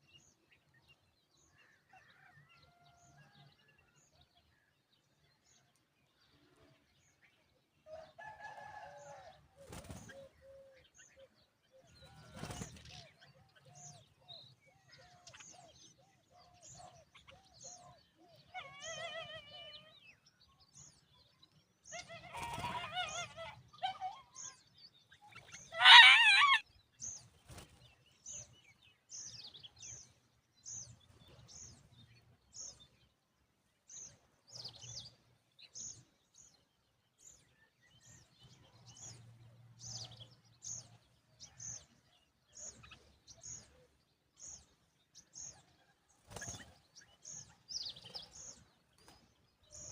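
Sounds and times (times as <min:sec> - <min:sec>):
bird warbling call: 0:25.3 - 0:26.6.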